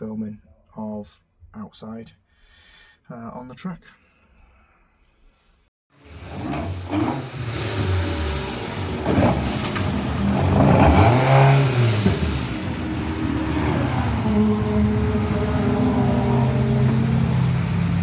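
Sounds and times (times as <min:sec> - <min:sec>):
car accelerating past: 0:06.0 - 0:18.0
race car engines at speed: 0:06.0 - 0:18.0.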